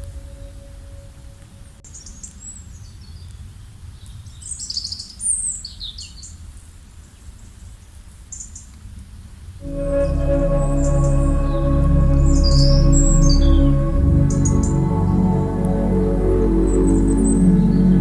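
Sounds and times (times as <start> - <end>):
ambient music with ringing tones: 9.6 - 18.0
low steady rumble: 9.6 - 18.0.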